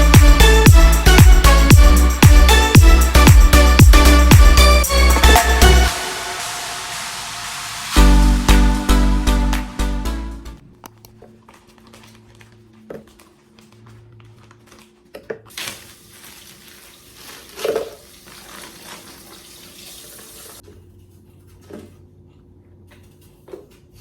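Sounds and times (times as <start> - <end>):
water running from a tap: 5.1 - 8.0, 15.5 - 20.6.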